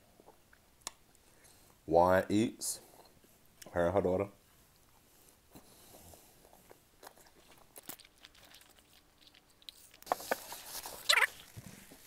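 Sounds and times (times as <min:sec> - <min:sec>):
person chewing food: 0:04.8 - 0:12.0.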